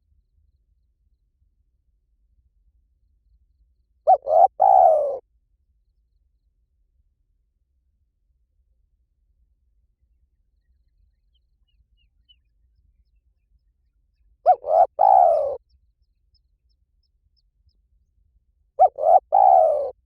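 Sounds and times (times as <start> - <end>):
dove cooing: 4.1 - 5.2, 14.5 - 15.6, 18.8 - 20.0.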